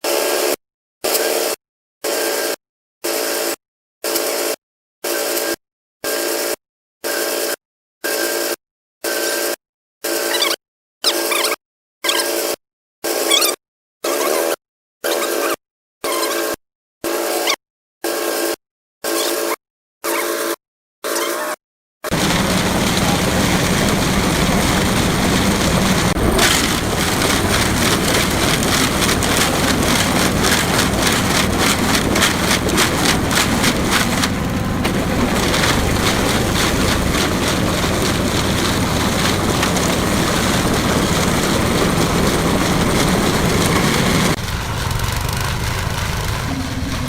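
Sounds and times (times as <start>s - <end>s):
concrete mixer clatter: 22.1s - 47.0s
concrete mixer engine hum: 22.1s - 47.0s.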